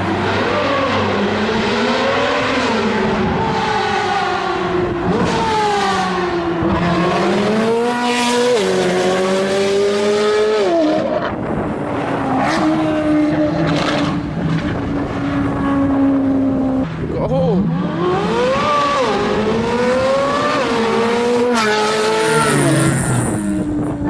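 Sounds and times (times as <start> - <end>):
sports car engine accelerating: 17.6 - 24.0.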